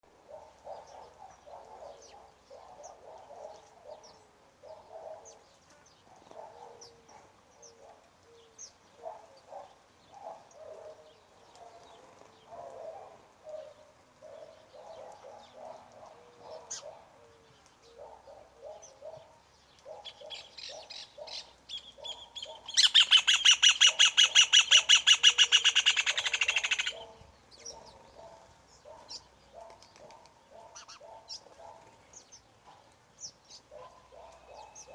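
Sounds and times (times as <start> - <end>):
low-pitched bird calls: 19.9 - 29.7, 30.5 - 31.5
high bird chirps: 21.7 - 27.0
bird harsh rapid trill: 22.7 - 27.0.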